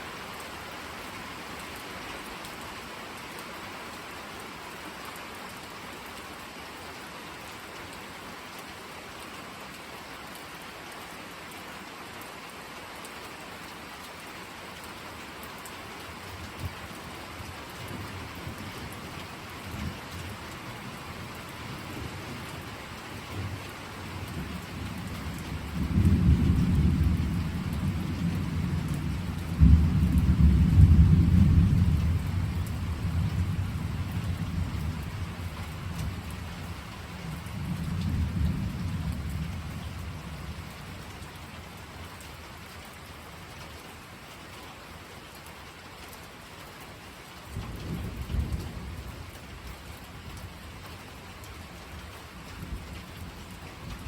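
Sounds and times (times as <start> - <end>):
steady rain: 0.0 - 54.0
deep rolling thunder: 25.6 - 35.4.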